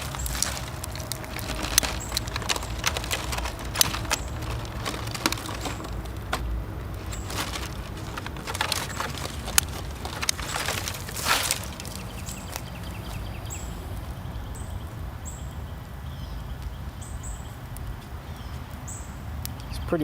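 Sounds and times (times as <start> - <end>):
dry branches snapping: 0.0 - 19.7
steady low rumble: 0.0 - 19.9.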